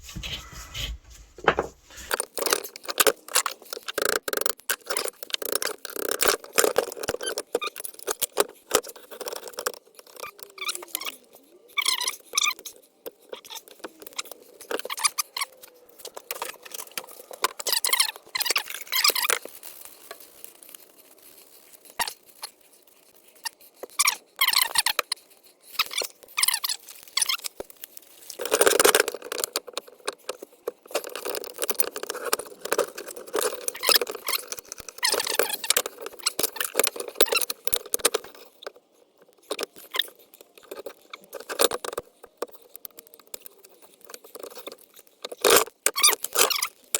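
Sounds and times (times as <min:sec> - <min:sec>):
metal squeaks and scrapes: 0:00.0 - 0:02.1.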